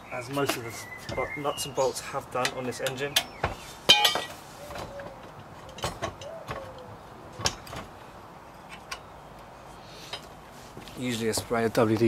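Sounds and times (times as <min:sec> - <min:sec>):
hand tools clicking on metal bolts: 0:02.4 - 0:07.9.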